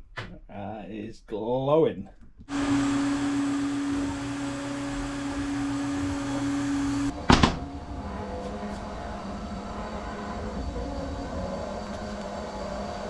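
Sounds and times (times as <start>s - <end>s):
low machine hum: 2.5s - 13.0s
machine motor humming and whirring: 2.5s - 13.0s
loud knock: 7.1s - 8.9s.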